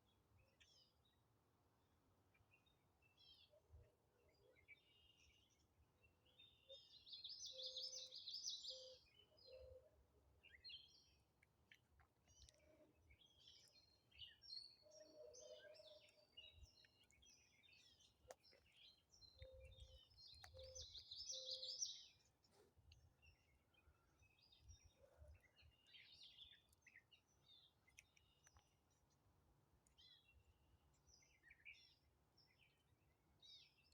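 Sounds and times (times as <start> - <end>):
birds chirping and trilling: 12.4 - 22.5.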